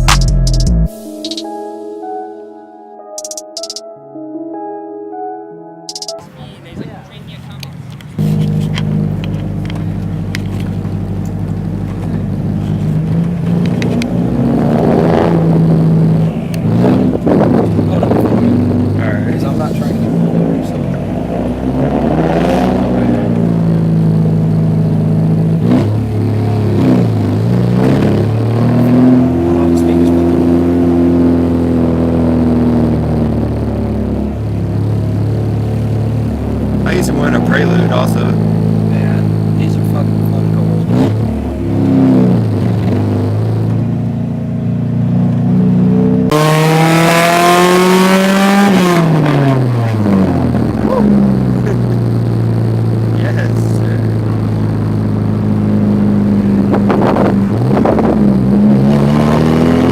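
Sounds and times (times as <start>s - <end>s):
car engine revving: 7.2s - 59.9s.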